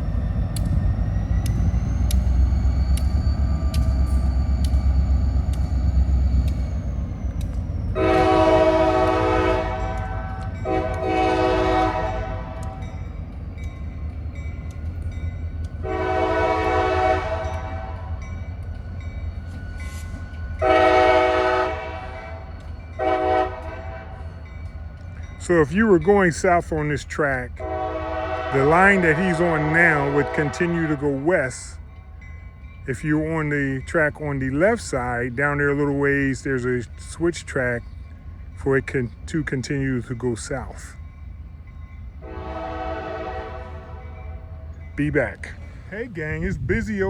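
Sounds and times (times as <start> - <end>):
diesel locomotive rumbling: 0.0 - 47.0
locomotive air horn blasts: 8.0 - 12.9, 15.8 - 18.2, 20.6 - 22.4, 23.0 - 24.3, 27.6 - 31.2, 42.2 - 44.6.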